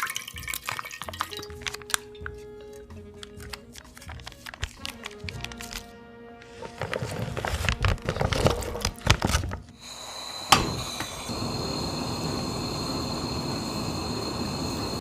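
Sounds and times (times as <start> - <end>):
faint high-pitched whine: 9.8 - 15.0
steady hiss: 9.8 - 15.0.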